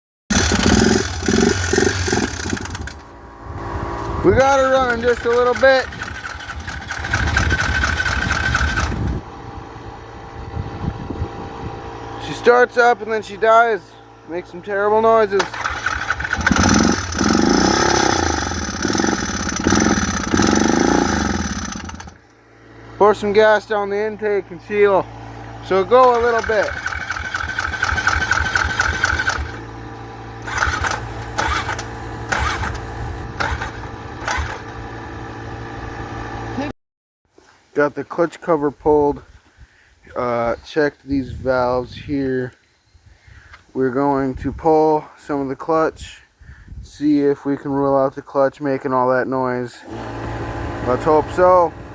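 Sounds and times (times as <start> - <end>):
short sharp noisy bursts: 0.3 - 9.2, 15.0 - 23.1, 24.7 - 34.8
atv engine whining: 0.3 - 36.7, 49.8 - 51.9.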